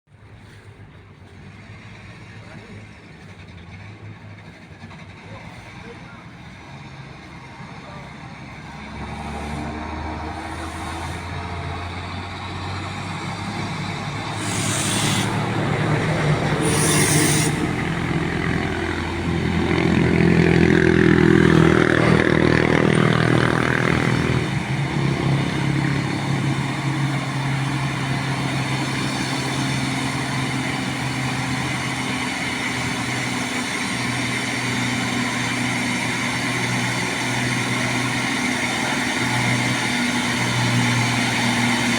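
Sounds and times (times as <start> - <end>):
truck diesel engine running: 0.1 - 41.9
air hisses: 14.3 - 15.6, 16.6 - 18.0.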